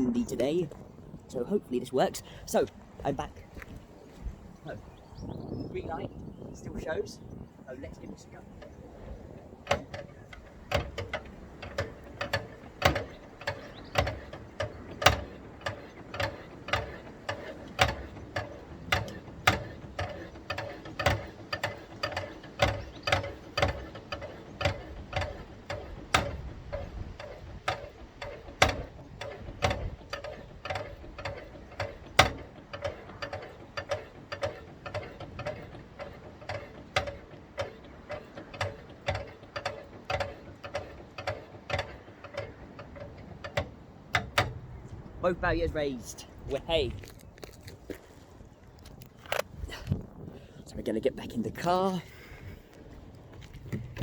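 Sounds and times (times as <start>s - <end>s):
barrier ratchet clicking: 7.9s - 48.0s.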